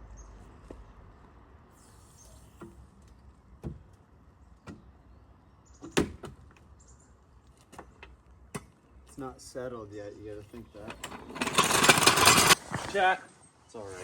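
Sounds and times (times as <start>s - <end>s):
sharp clicks and knocks: 10.8s - 12.9s.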